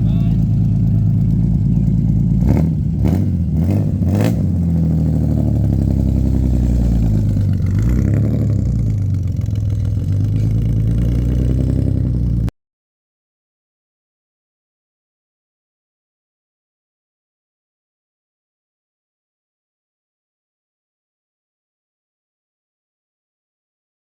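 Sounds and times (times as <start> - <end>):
car engine revving: 0.0 - 12.5.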